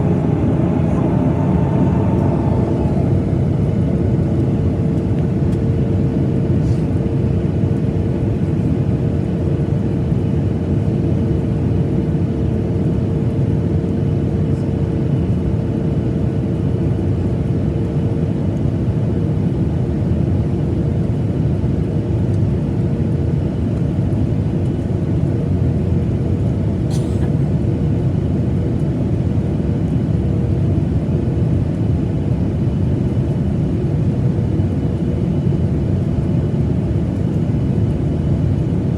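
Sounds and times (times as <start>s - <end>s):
steady hum tone: 0.0s - 5.2s
airliner cabin engine rumble: 0.0s - 38.9s.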